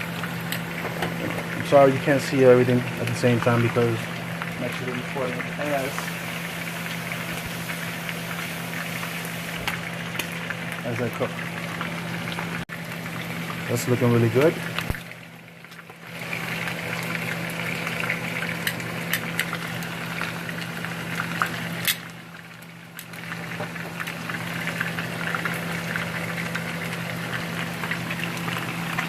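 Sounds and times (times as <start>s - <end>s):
pork sizzling in hot oil: 0.0s - 29.0s.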